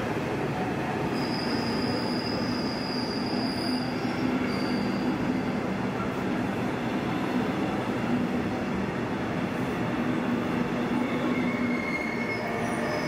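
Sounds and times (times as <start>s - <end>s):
train rolling into platform: 0.0s - 13.0s
high brake squeal: 1.1s - 5.7s, 11.0s - 13.0s.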